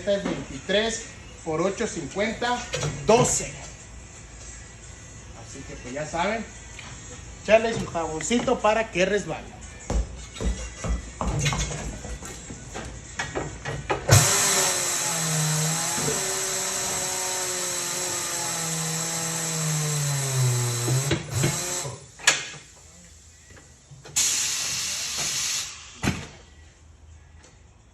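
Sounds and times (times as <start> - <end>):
compressed air hissing into tire: 24.1 - 26.1.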